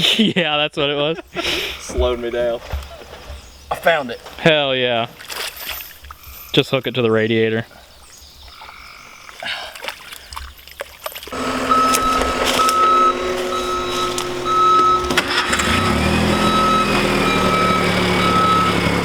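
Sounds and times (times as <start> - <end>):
vehicle engine running: 11.3 - 19.0
reversing alarm beeping: 11.4 - 19.0.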